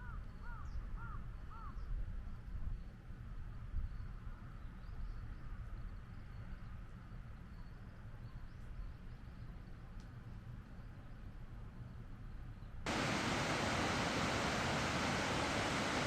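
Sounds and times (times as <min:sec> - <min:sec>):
steady low rumble: 0:12.9 - 0:16.0.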